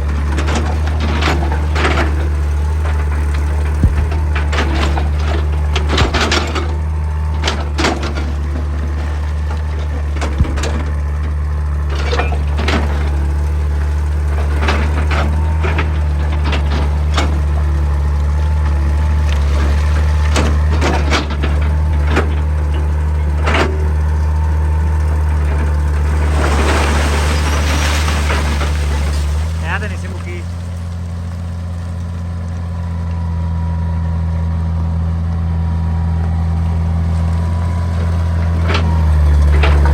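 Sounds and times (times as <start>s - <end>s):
excavator diesel engine droning: 0.0s - 39.9s
steel knocking on rock: 3.8s - 4.3s.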